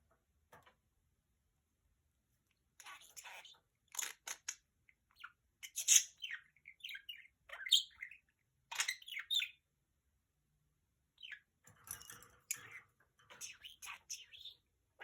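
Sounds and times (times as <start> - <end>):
budgerigar chirping: 5.2 - 9.6.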